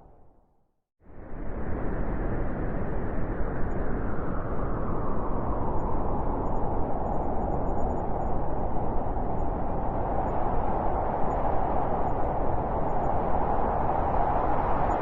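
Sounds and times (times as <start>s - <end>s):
strong wind rushing: 4.0s - 15.0s.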